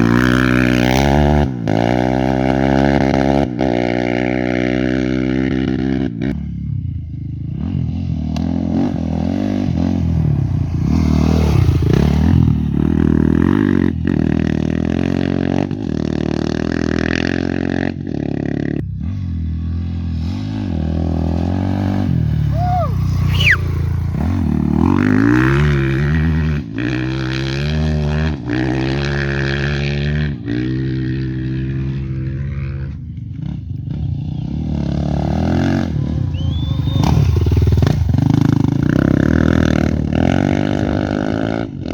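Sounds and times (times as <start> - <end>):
motorcycle engines revving: 0.0 - 41.9
short high whistle: 22.5 - 23.8, 36.0 - 37.6.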